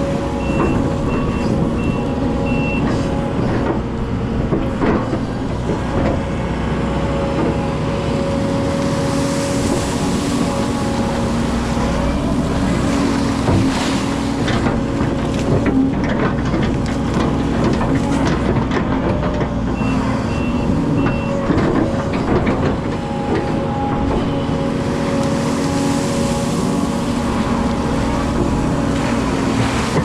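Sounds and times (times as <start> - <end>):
excavator diesel engine: 0.0 - 30.0
knocks and clatter: 13.4 - 19.9, 21.0 - 24.4.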